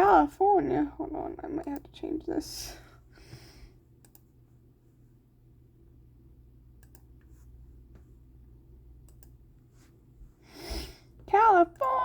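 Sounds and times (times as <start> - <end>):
low steady hum: 0.0 - 12.0
computer clicks: 4.0 - 4.3, 6.8 - 7.1, 9.0 - 9.4.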